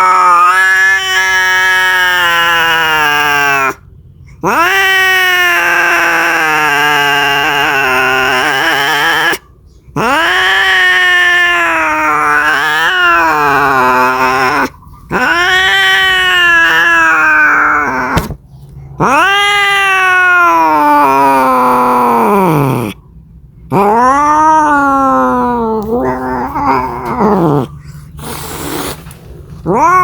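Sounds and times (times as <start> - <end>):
cat yowling: 0.0 - 3.8, 4.4 - 18.3, 19.0 - 23.0, 23.7 - 28.9, 29.6 - 30.0.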